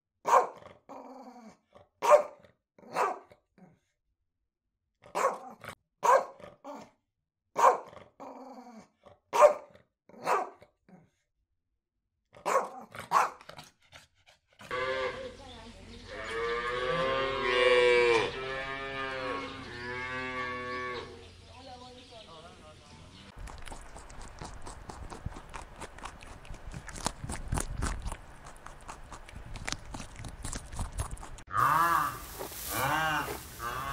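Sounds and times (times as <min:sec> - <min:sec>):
dog barking: 0:00.2 - 0:00.6, 0:02.0 - 0:03.3, 0:05.1 - 0:06.8, 0:07.6 - 0:08.0, 0:09.3 - 0:10.7, 0:12.4 - 0:13.6
cow mooing: 0:14.7 - 0:15.4, 0:16.1 - 0:21.2, 0:31.5 - 0:33.9.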